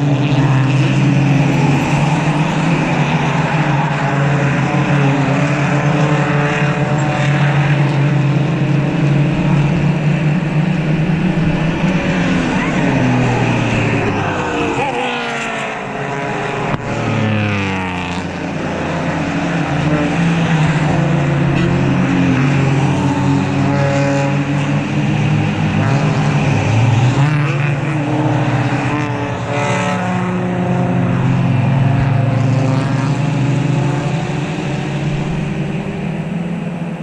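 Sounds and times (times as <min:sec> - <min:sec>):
race car engines passing: 0:00.0 - 0:37.0.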